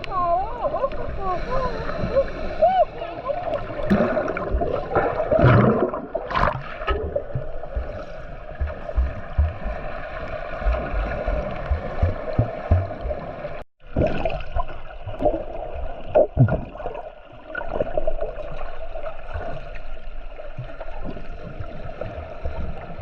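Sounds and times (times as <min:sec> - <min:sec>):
water gurgling and bubbling: 0:00.0 - 0:23.0.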